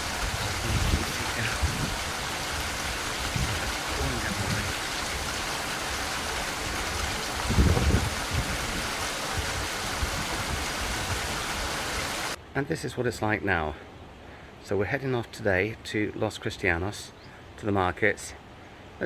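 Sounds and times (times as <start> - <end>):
low rumbles: 0.0 - 11.4
steady rain falling: 0.0 - 12.4.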